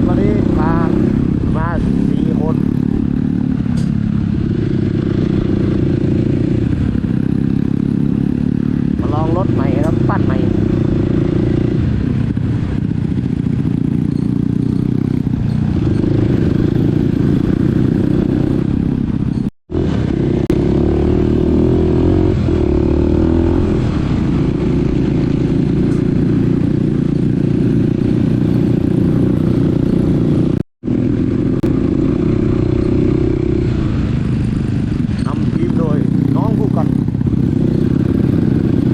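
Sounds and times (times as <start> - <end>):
dirt bike engine running: 0.0 - 38.9
rattle and clatter: 13.4 - 17.0, 34.2 - 35.7.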